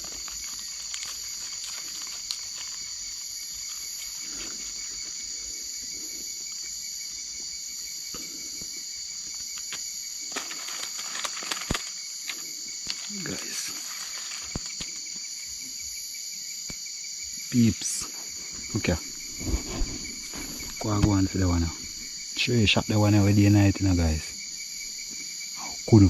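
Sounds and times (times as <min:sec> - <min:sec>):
faint clicks and rustles: 0:00.0 - 0:05.3, 0:09.3 - 0:15.3
insects chirring: 0:00.0 - 0:26.0.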